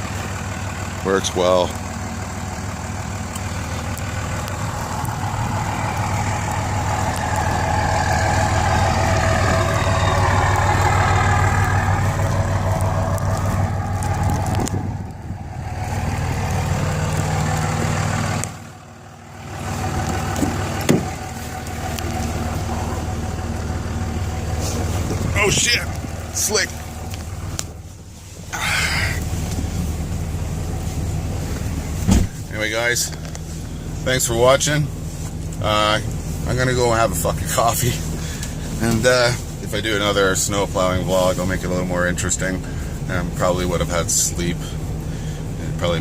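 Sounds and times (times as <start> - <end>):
diesel truck engine under load: 0.0 - 46.0
faint turbo whistle: 5.5 - 12.1.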